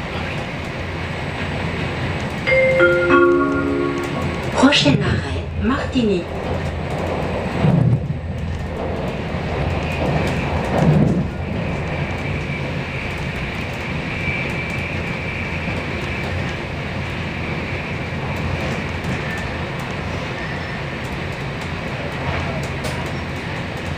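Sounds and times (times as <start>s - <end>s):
train rumbling on track: 0.0s - 23.9s.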